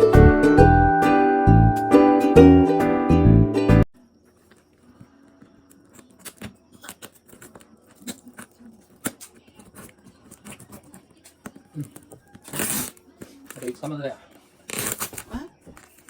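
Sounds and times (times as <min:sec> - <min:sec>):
packaging clicks and rustles: 0:04.2 - 0:16.0.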